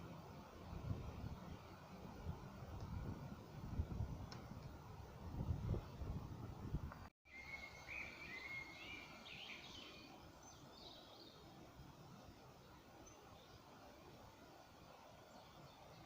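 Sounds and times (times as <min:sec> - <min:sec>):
faint outdoor hiss: 0:00.0 - 0:16.0
songbird warbling: 0:07.3 - 0:11.3.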